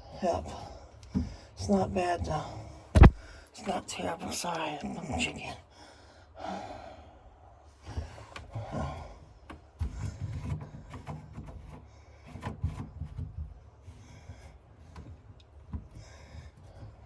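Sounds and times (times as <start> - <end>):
rubbing and scraping: 7.8 - 17.0.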